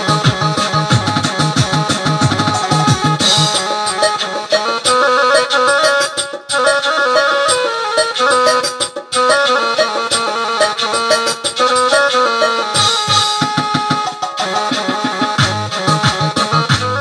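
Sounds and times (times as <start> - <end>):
drum rhythm: 0.0 - 12.2, 12.8 - 17.0
reedy wind instrument melody: 0.0 - 13.5.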